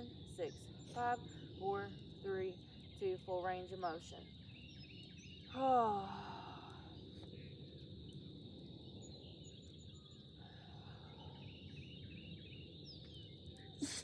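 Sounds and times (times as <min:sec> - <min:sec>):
high insect drone: 0:00.0 - 0:14.0
faint bird chirps: 0:08.8 - 0:14.0.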